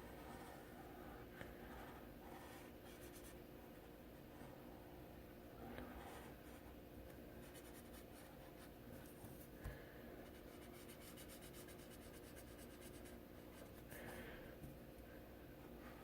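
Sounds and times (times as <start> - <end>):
coloring tool scratching paper: 10.3 - 13.7.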